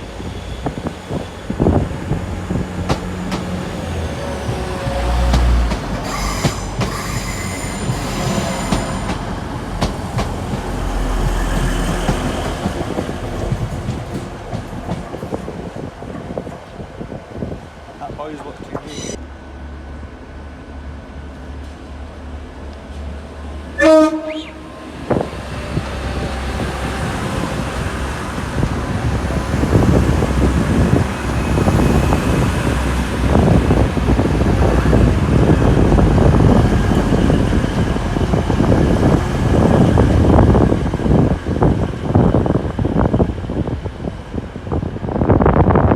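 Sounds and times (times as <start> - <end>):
train rumbling: 0.0 - 45.9
train horn blast: 23.8 - 24.8.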